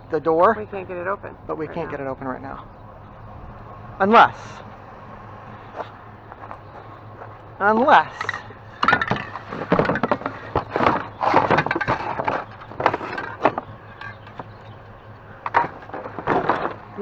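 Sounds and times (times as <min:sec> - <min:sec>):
cabinet knocking and clattering: 0:08.2 - 0:14.8, 0:15.4 - 0:17.0.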